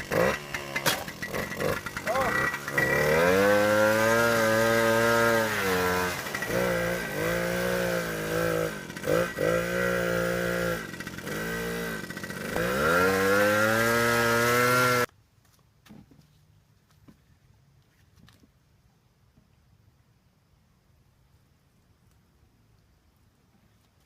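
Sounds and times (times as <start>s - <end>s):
motorbike engine revving: 0.0s - 15.1s.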